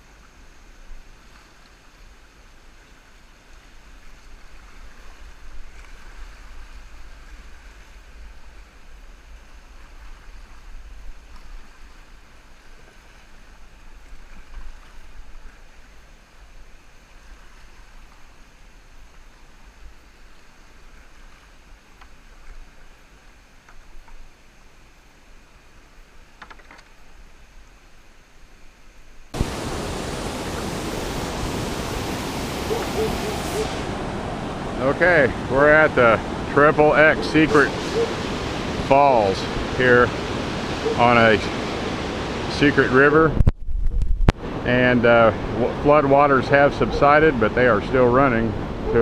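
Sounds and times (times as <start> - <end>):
muffled rushing river water: 0.0 - 49.0.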